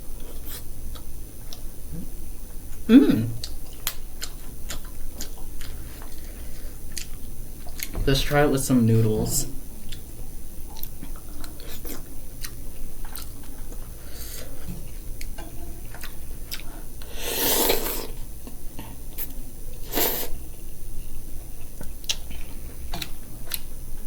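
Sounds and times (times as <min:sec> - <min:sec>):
chewing noodles: 0:03.4 - 0:06.2, 0:10.7 - 0:14.5.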